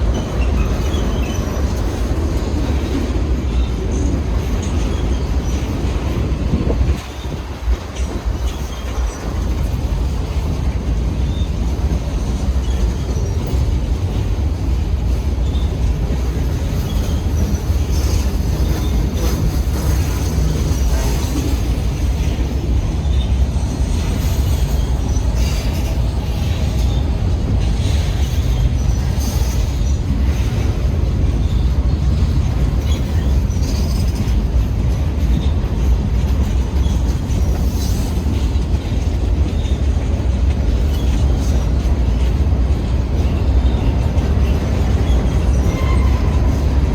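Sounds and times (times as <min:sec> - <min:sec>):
train wheels rumbling on rail: 0:00.0 - 0:46.9
wheel squeal: 0:43.6 - 0:46.9.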